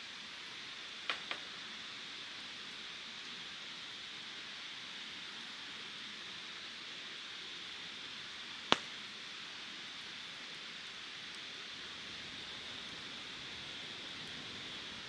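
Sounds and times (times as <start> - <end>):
steady hiss: 0.0 - 15.0
sharp click: 8.7 - 8.9.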